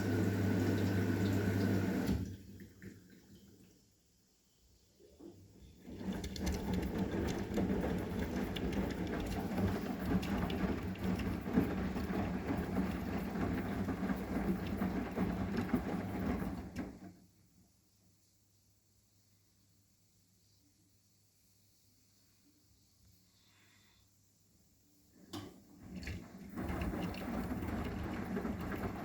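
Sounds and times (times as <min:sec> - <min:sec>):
washing machine drum turning: 0:05.8 - 0:17.2, 0:25.3 - 0:29.0.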